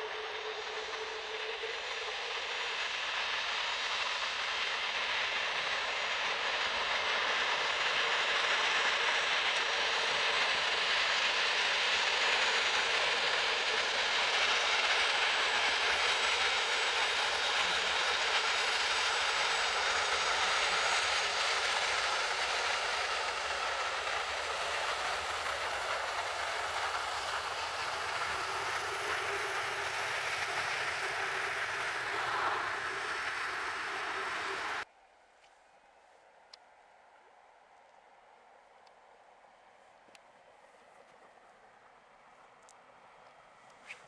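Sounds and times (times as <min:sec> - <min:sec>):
jet engines rushing: 0:00.0 - 0:34.9.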